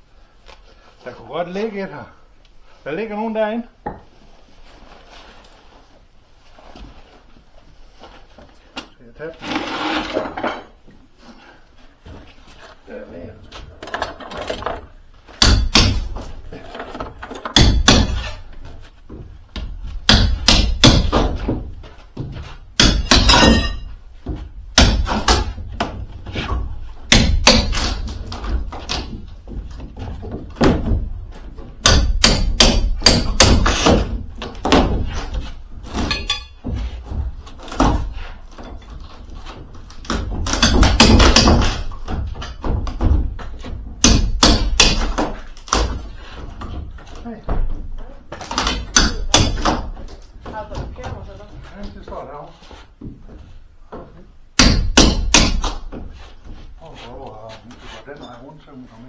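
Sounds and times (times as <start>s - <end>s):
parts thudding and clattering: 13.6s - 52.1s.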